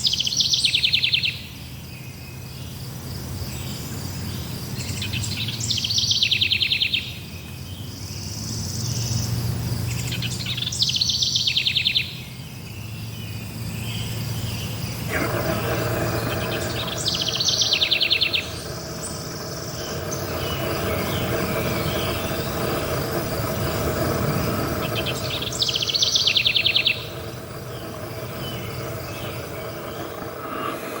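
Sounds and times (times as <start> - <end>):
insects chirping: 0.0 - 31.0
songbird trilling: 13.8 - 31.0.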